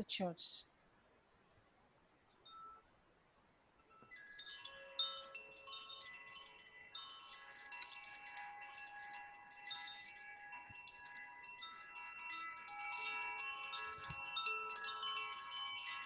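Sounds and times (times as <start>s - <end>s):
chimes ringing: 3.8s - 16.0s.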